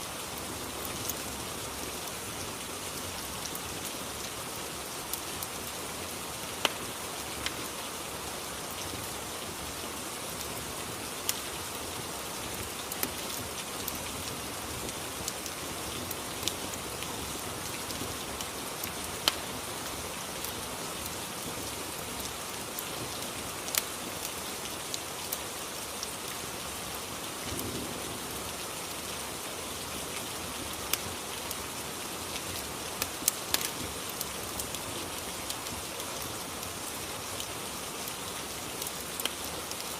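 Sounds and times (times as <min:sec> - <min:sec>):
steady rain: 0:00.0 - 0:39.9
fireplace crackling: 0:18.8 - 0:19.4, 0:33.0 - 0:33.8.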